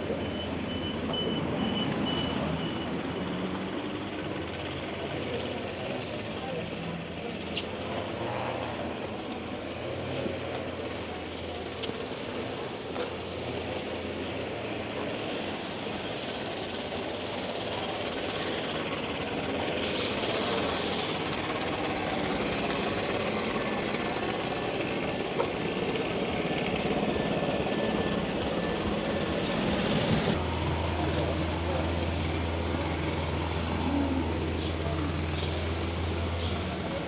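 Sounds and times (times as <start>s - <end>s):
city street noise: 0.0s - 37.0s
rapid mechanical rattling: 28.8s - 37.0s.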